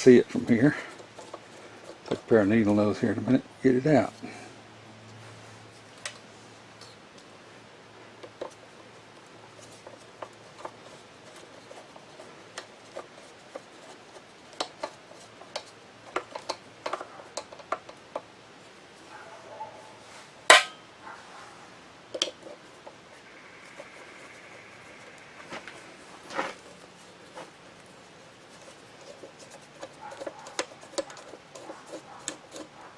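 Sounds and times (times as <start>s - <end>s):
sharp metallic clank: 20.5s - 20.9s.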